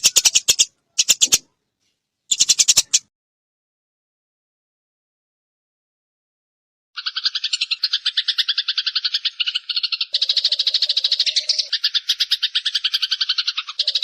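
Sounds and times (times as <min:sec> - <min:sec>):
lower buzzing bird trill: 0:00.0 - 0:01.4
songbird trill: 0:00.0 - 0:01.6, 0:02.3 - 0:03.0, 0:07.0 - 0:14.0.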